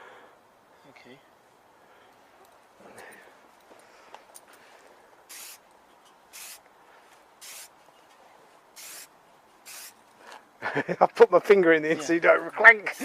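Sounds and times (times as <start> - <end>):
aerosol spray can hissing: 5.3 - 5.6, 6.3 - 6.6, 7.4 - 7.7, 8.8 - 10.0.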